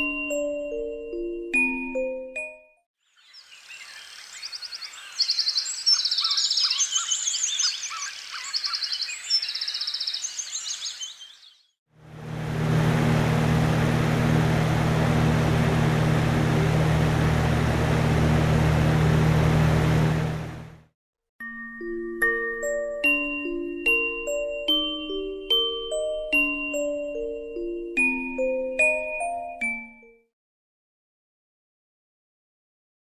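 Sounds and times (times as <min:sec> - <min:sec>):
birds chirping recording: 0:03.1 - 0:11.8
low hum: 0:12.0 - 0:20.8
steady white noise: 0:12.1 - 0:20.8.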